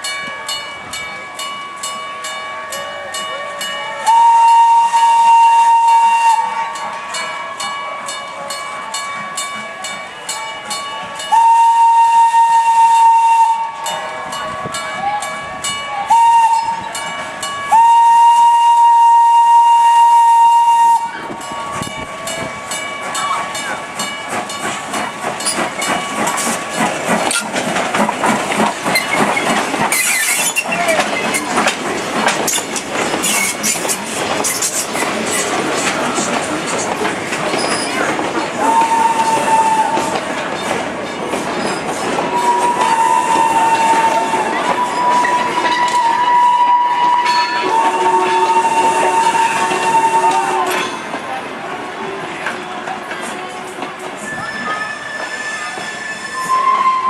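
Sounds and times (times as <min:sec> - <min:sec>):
rumbling train noise: 0:00.0 - 0:57.0
steam locomotive whistle: 0:03.0 - 0:07.3, 0:11.2 - 0:17.0, 0:17.7 - 0:22.0, 0:38.6 - 0:40.4, 0:42.3 - 0:51.0, 0:54.2 - 0:57.0
steam hissing: 0:17.8 - 0:50.8.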